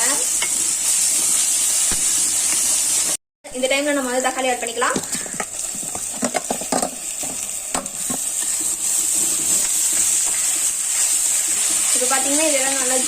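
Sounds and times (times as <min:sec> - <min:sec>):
food sizzling in oil: 0:00.0 - 0:13.0
spatula scraping a pan: 0:05.0 - 0:13.0.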